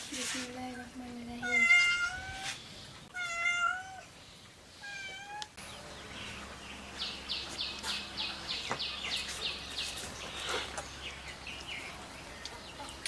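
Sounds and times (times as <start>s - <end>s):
cat meowing: 1.4s - 2.4s, 3.1s - 4.1s, 4.8s - 5.6s.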